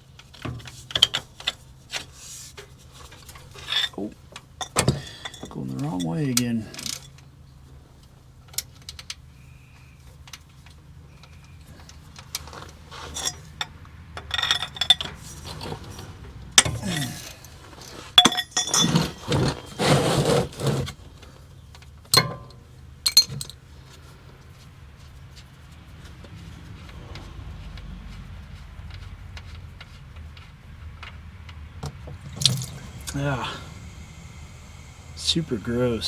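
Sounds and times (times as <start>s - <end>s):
metal tools clinking and scraping: 0.3s - 7.2s, 11.3s - 21.3s, 22.1s - 24.0s.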